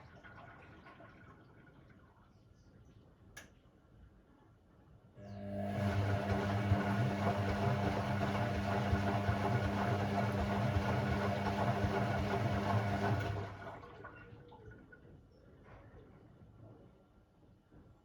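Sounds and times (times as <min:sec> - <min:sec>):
washing machine valve humming: 0:05.2 - 0:13.7.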